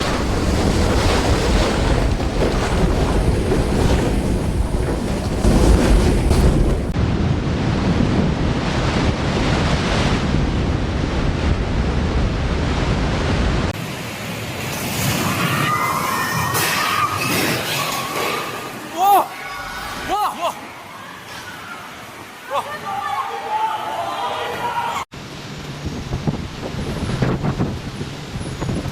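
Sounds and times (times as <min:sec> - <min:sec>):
wind buffeting microphone: 0:00.0 - 0:13.8, 0:25.7 - 0:28.9
surf rushing: 0:00.0 - 0:28.9.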